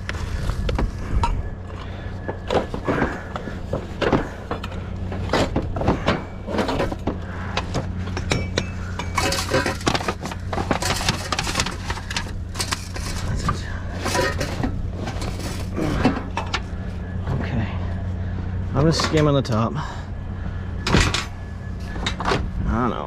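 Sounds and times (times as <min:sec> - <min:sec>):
hard objects clinking and clattering: 0:00.0 - 0:16.8
steady low hum: 0:00.0 - 0:23.0.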